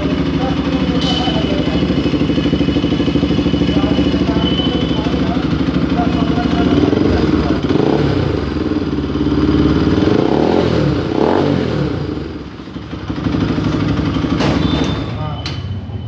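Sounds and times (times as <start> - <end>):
motorcycle engine revving: 0.0 - 15.8
sharp knock: 14.3 - 15.0.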